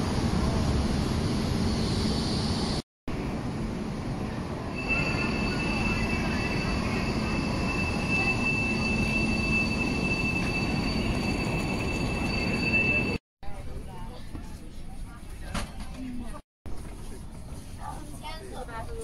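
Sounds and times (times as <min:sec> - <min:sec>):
high-speed train rumble: 0:00.0 - 0:14.1
high-pitched squeal: 0:04.7 - 0:13.2.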